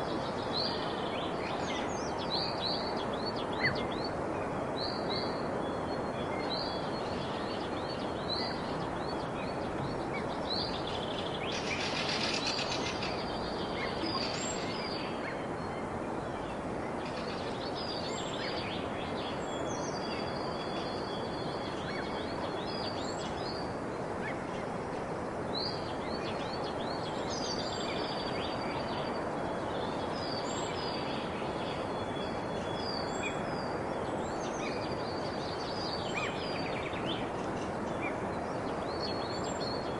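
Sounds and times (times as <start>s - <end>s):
steady background hiss: 0.0s - 39.9s
birds singing and chirping: 4.8s - 24.4s.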